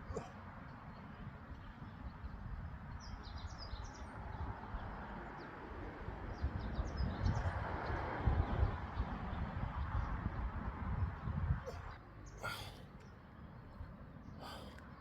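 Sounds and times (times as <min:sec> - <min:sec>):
small birds chirping: 0:00.0 - 0:05.6, 0:09.0 - 0:15.0.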